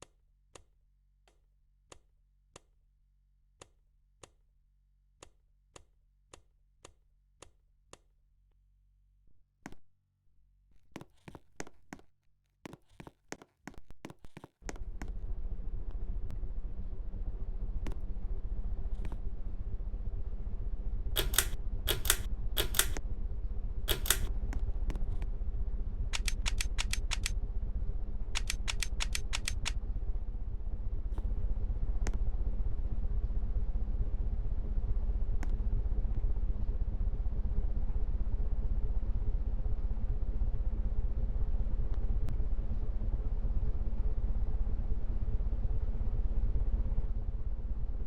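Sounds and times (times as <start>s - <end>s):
sharp clicks: 21.2s - 23.0s, 23.9s - 24.6s, 26.2s - 27.4s, 28.4s - 29.8s.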